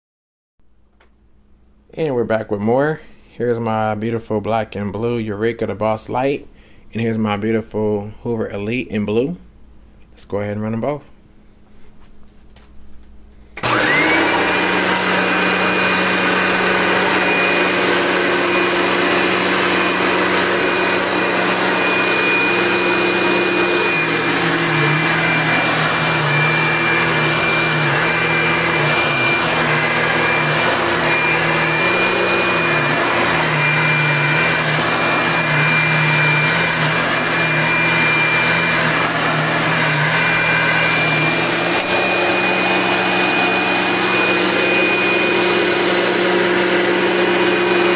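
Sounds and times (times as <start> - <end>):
vacuum cleaners running: 13.5 - 47.9.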